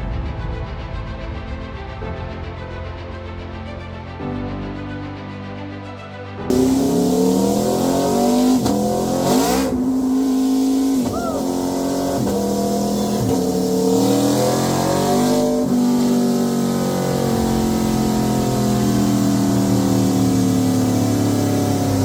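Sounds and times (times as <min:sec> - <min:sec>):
motorcycle engine at high revs: 0:06.5 - 0:22.0.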